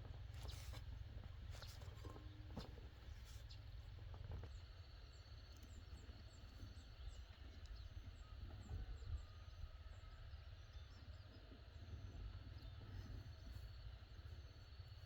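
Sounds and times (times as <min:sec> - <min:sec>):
wind rumble on microphone: 0:05.9 - 0:10.9.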